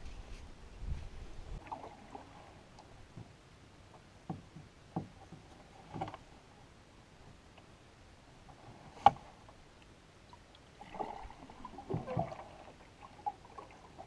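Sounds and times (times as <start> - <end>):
paddle splashing water: 1.5 - 3.4, 8.4 - 14.0.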